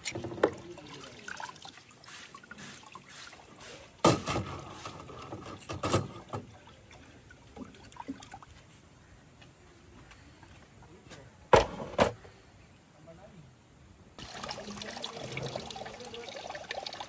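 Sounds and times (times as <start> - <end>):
liquid trickling: 0.0 - 8.7, 14.2 - 17.0.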